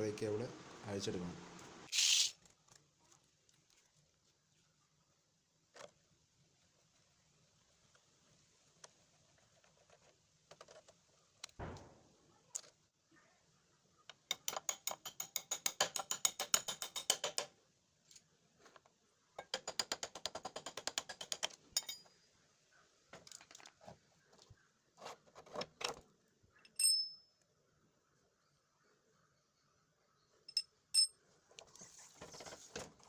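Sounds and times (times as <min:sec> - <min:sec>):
knocks on metal parts: 0:11.6 - 0:12.1, 0:14.3 - 0:17.5, 0:19.4 - 0:22.1
short ringing metal clink: 0:26.7 - 0:27.4, 0:30.5 - 0:31.2.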